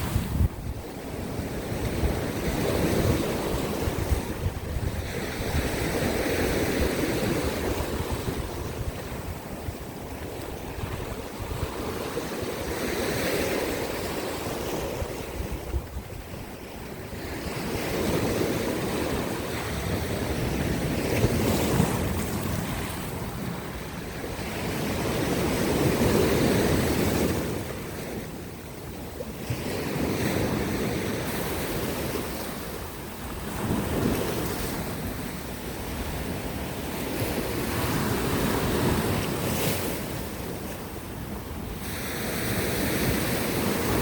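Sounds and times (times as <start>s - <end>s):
waves breaking over rocks: 0.0s - 28.2s.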